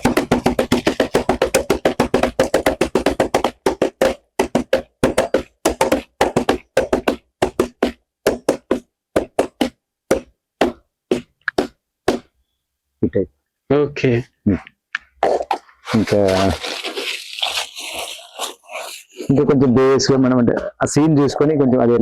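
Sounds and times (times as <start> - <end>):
foley horse hoofbeats galloping: 0.0 - 12.3, 16.3 - 19.3.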